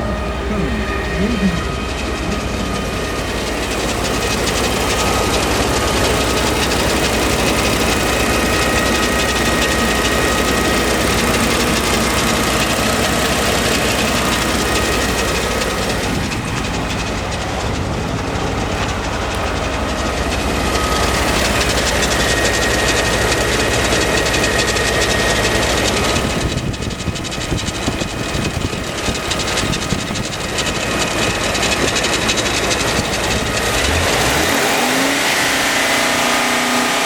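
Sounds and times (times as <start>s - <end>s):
faint high whine: 0.0s - 5.5s
engine idling: 0.0s - 37.0s.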